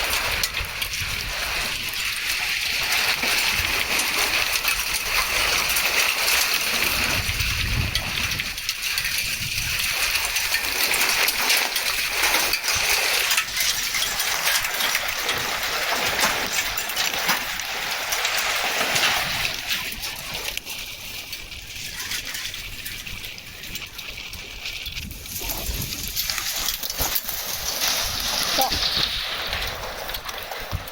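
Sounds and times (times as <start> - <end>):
hailstones clattering: 0.0 - 30.9
heavy rain hiss: 25.2 - 30.9.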